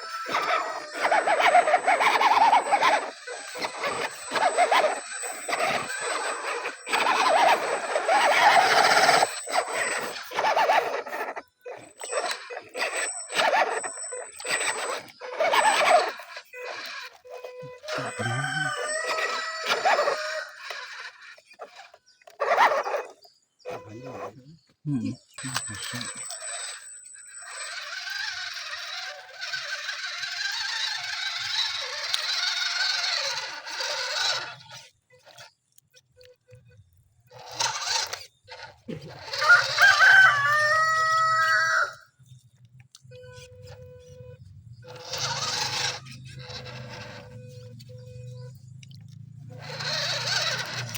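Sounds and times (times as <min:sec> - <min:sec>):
rooster crowing: 0:00.0 - 0:01.1, 0:17.9 - 0:20.8, 0:39.3 - 0:42.1.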